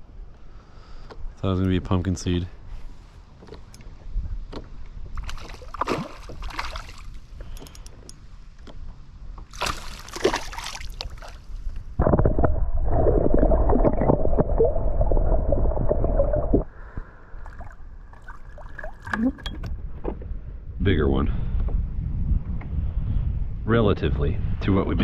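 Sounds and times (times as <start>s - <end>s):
water splashing around kayak: 2.7s - 8.1s, 9.4s - 19.4s
muffled rumble with hum: 11.1s - 17.8s.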